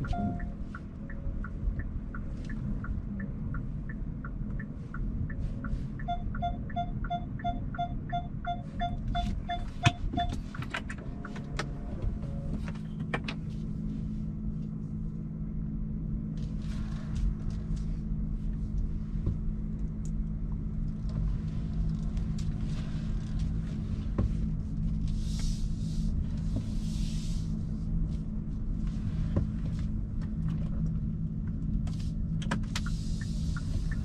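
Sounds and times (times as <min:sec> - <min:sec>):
short electronic beeps: 0:00.0 - 0:00.6, 0:06.0 - 0:10.4
turn indicator ticking: 0:00.0 - 0:11.8, 0:30.2 - 0:34.0
road rumble: 0:00.0 - 0:34.0
steady low hum: 0:00.0 - 0:34.0.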